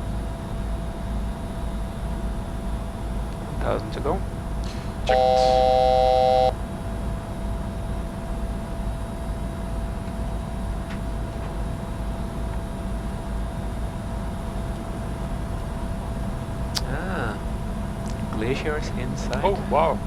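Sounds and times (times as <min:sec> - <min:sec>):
jet cockpit airflow and engine rumble: 0:00.0 - 0:20.0
faint steady tone: 0:04.6 - 0:06.6
electronic cockpit chime: 0:04.7 - 0:06.6.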